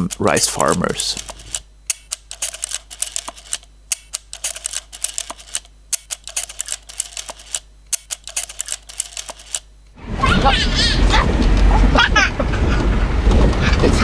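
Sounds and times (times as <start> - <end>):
sharp mechanical clicks: 0.0 - 10.0.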